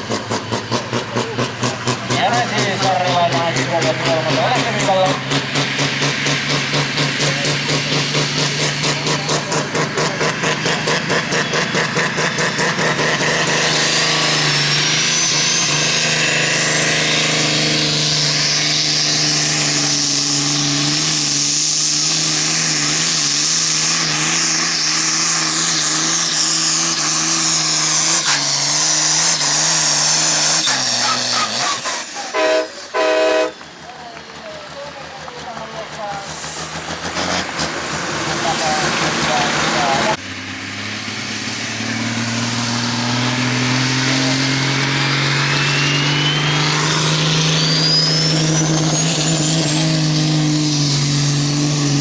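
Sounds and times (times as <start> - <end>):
tractor engine under full load: 0.0 - 52.0
rising whistle: 44.8 - 51.3.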